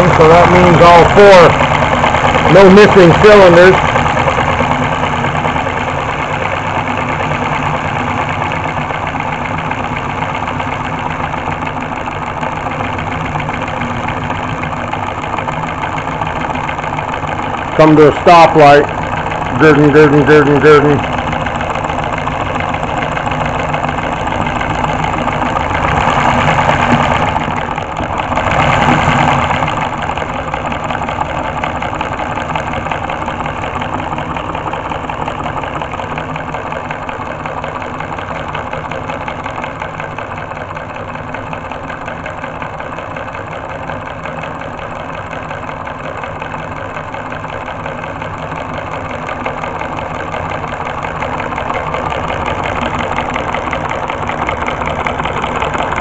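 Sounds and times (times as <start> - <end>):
solenoid engine clattering: 0.0 - 56.0.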